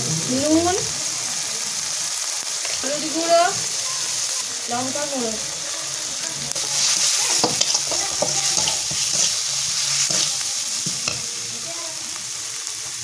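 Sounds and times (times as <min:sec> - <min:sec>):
onions sizzling in oil: 0:00.0 - 0:13.0
metal spatula scraping pan: 0:06.5 - 0:11.3.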